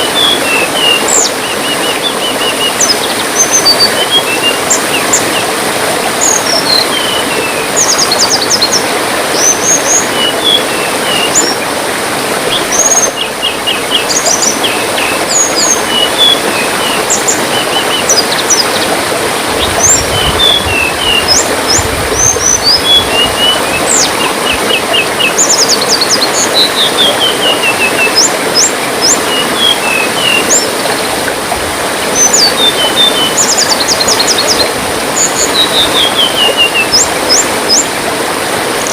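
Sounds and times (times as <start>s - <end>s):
babbling water: 0.0s - 38.9s
small songbirds chirping: 19.6s - 30.8s.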